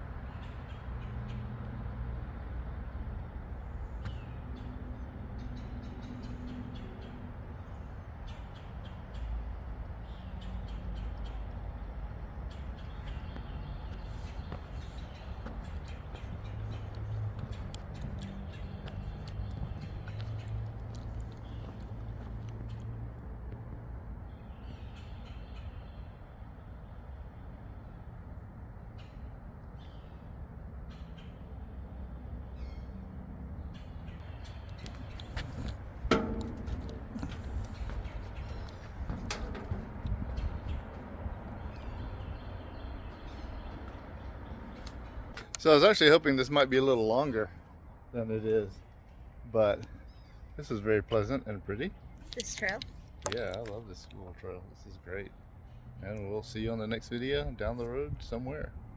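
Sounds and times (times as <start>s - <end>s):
highway traffic rumble: 0.0s - 58.9s
small bird calls: 3.9s - 11.5s, 12.4s - 22.9s, 33.6s - 46.0s.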